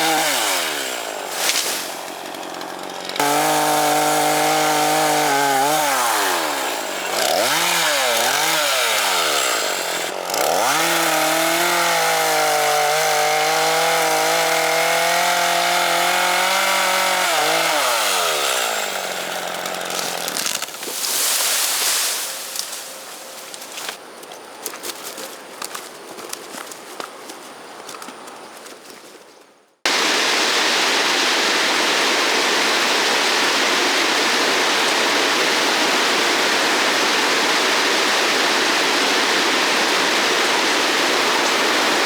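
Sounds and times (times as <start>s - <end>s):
chainsaw cutting bamboo: 0.0s - 24.0s, 29.9s - 42.0s
rustling: 0.7s - 3.2s, 18.7s - 29.7s.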